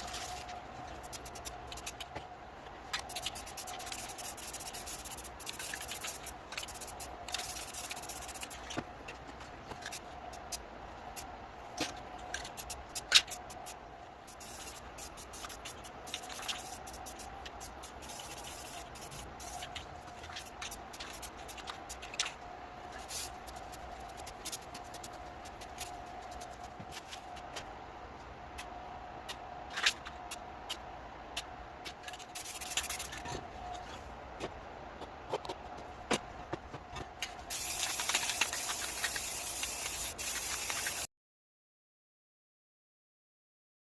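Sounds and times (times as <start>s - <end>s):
faint steady hum: 0.0s - 41.1s
paintbrush strokes rubbing: 3.0s - 8.7s, 12.4s - 27.5s.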